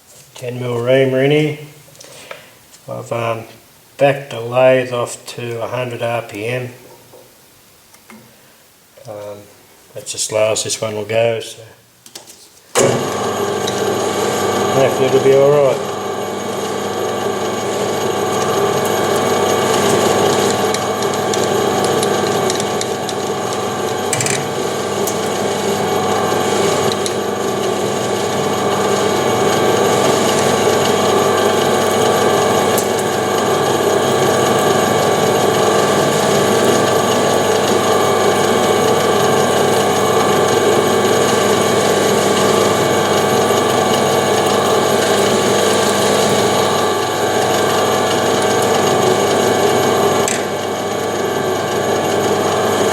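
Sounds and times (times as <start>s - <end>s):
metal lathe gear whine: 12.8s - 52.9s.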